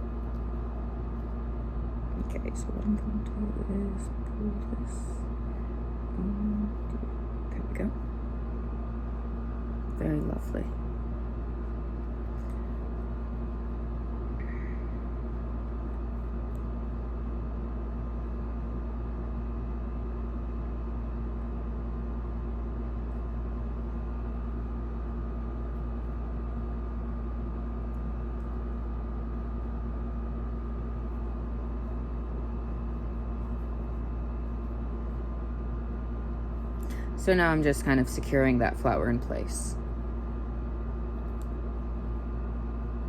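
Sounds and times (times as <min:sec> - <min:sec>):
steady machine hum: 0:00.0 - 0:43.0.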